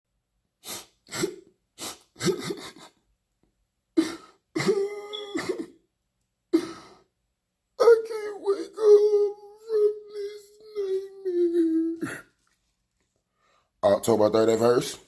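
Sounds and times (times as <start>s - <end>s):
person coughing and gasping: 1.0s - 3.0s, 4.0s - 5.8s, 6.5s - 7.1s.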